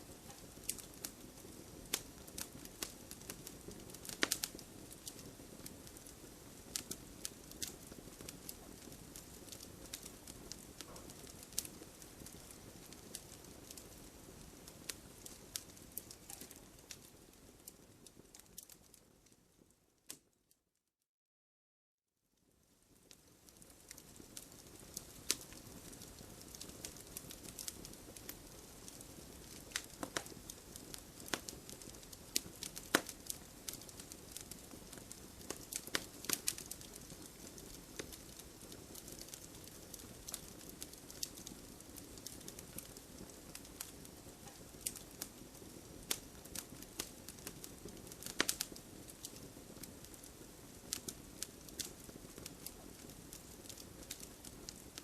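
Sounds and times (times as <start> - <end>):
wood fire crackling and popping: 0.0 - 20.3, 22.6 - 55.0.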